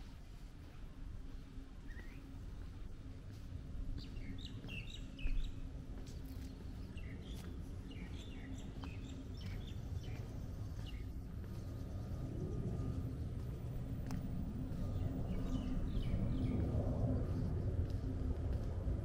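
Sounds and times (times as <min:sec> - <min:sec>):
low background rumble: 0:00.0 - 0:19.0
small birds chirping: 0:01.8 - 0:02.8, 0:04.0 - 0:17.4.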